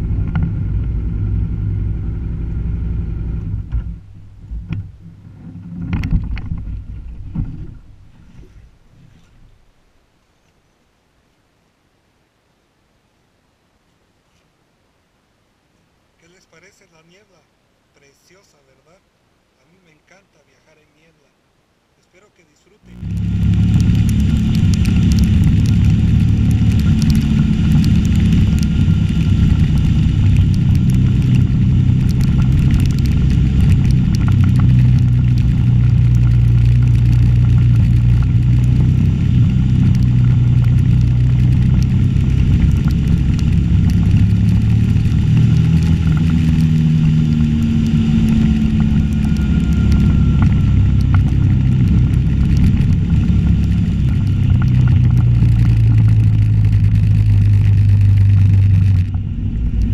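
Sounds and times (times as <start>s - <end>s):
motorcycle engine cruising: 0.0s - 8.7s, 22.9s - 59.9s
rushing wind noise: 23.0s - 59.9s.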